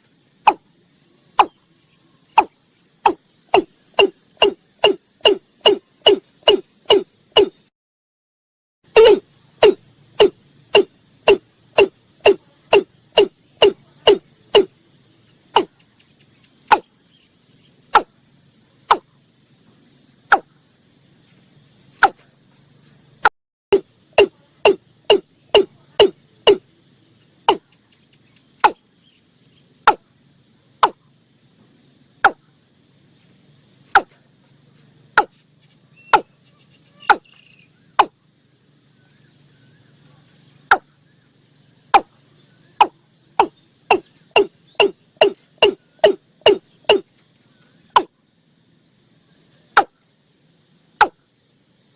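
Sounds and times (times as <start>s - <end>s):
cricket trill: 0.0s - 7.7s, 8.8s - 51.9s
bird deep booming calls: 2.4s - 7.6s, 8.9s - 14.7s, 23.7s - 26.6s, 35.1s - 35.4s, 36.0s - 38.2s, 40.7s - 41.2s, 41.9s - 47.1s.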